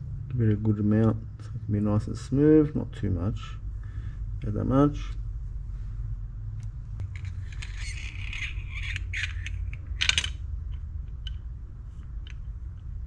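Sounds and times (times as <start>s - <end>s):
steady low hum: 0.0s - 13.0s
metal parts clinking: 7.0s - 10.4s
metal parts scraping: 7.1s - 10.4s.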